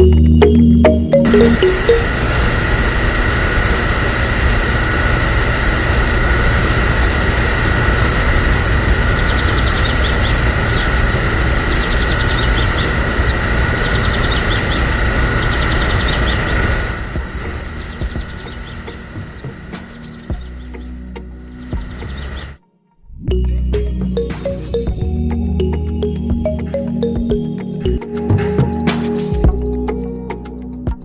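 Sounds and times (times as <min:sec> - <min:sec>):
small motor whining: 0:01.3 - 0:22.6.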